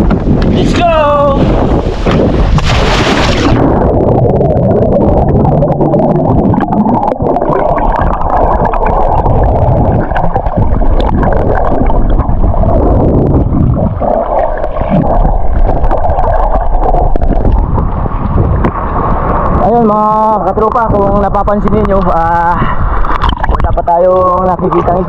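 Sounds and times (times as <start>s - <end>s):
underwater rushing and bubbling: 0.0s - 25.0s
splash into water: 2.0s - 3.7s.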